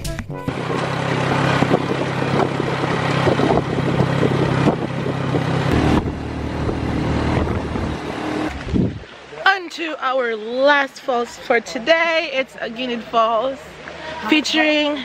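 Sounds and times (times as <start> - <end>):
small motorcycle engine running: 0.5 - 9.0.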